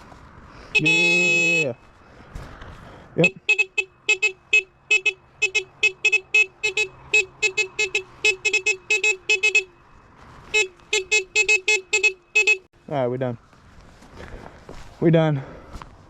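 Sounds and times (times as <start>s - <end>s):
electric bike horn beeping: 0.8s - 1.8s, 3.2s - 9.7s, 10.5s - 12.7s.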